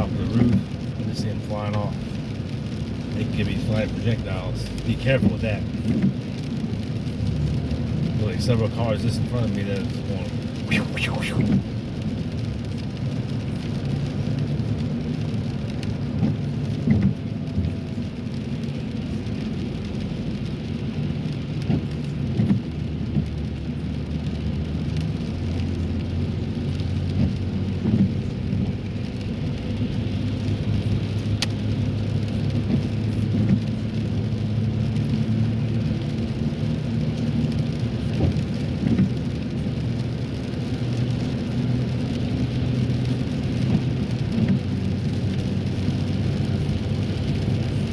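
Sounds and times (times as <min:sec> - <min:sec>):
engine and tyres droning: 0:00.0 - 0:47.9
rain hitting car: 0:00.0 - 0:47.9.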